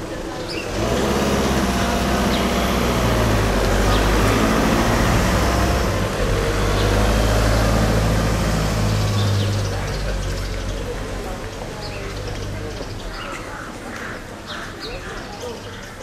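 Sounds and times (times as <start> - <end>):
car engine driving past: 0.5 - 12.9.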